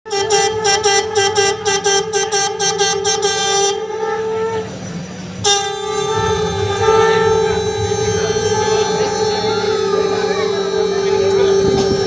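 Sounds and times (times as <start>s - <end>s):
conch shell blown: 0.1s - 12.0s.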